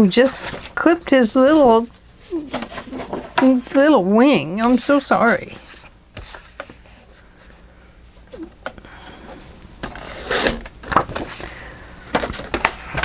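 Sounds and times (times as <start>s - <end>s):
paper rustling: 0.0s - 8.5s, 9.4s - 13.0s
paper scraping: 0.3s - 7.5s, 9.8s - 13.0s.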